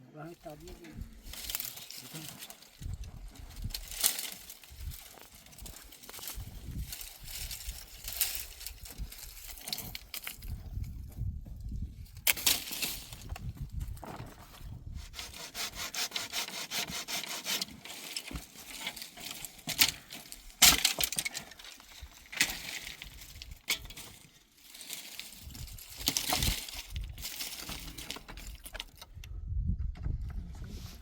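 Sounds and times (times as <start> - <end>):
hand saw rasping through wood: 15.0 - 19.8.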